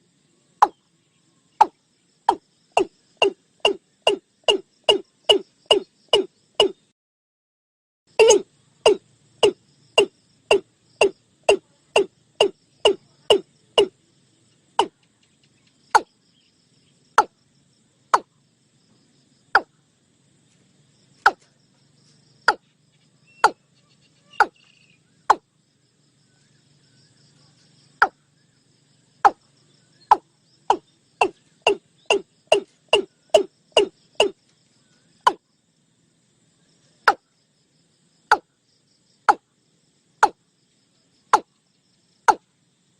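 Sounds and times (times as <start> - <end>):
bird calling sharp notes: 2.8 - 6.8, 8.2 - 13.9, 23.2 - 25.4, 30.1 - 34.4.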